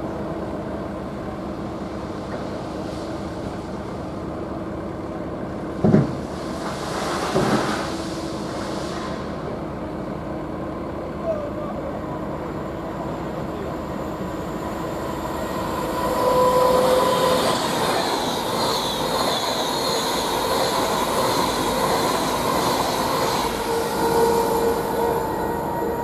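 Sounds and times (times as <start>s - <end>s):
electric train passing: 0.0s - 26.0s.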